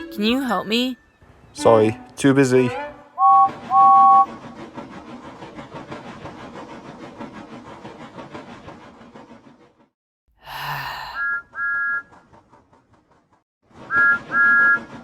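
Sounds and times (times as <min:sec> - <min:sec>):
locomotive chuffing: 0:00.0 - 0:10.0, 0:11.2 - 0:15.0
steam locomotive whistle: 0:01.6 - 0:04.4, 0:11.2 - 0:12.2, 0:13.9 - 0:15.0.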